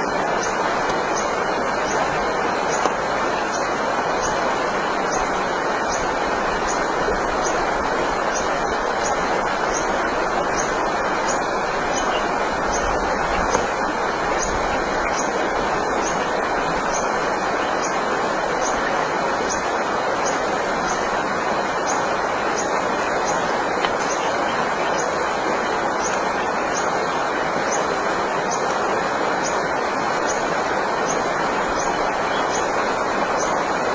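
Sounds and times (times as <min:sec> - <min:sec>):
stream water rushing: 0:00.0 - 0:33.9.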